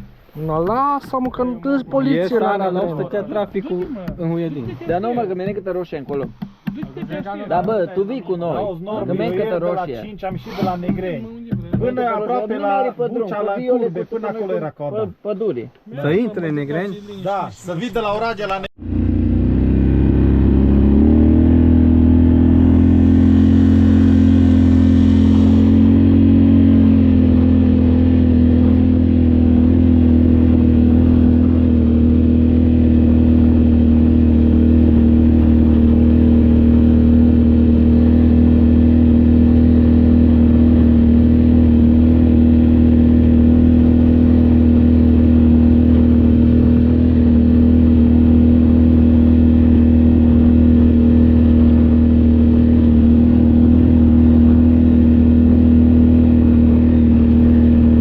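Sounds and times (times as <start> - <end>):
vehicle engine droning: 16.8 - 58.0.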